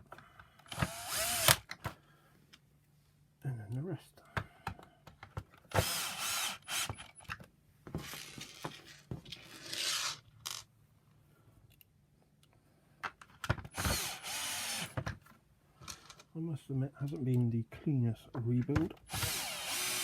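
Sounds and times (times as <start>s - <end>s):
electric screwdriver driving screws: 0.7s - 1.7s, 5.7s - 7.2s, 13.7s - 15.0s, 19.1s - 20.0s.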